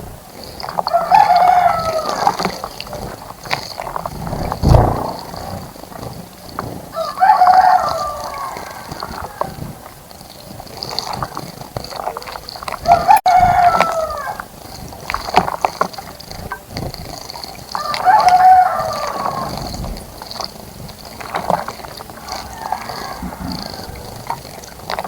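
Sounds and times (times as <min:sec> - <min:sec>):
rooster crowing: 0:00.9 - 0:02.4, 0:06.9 - 0:09.6, 0:12.8 - 0:14.4, 0:17.8 - 0:19.6, 0:22.2 - 0:24.1.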